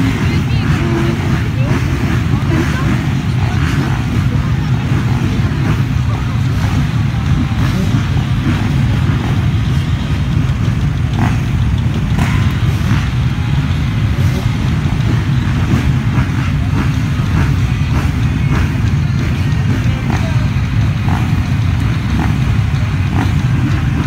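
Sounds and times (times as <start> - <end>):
dirt bike engines rumbling: 0.0 - 24.0.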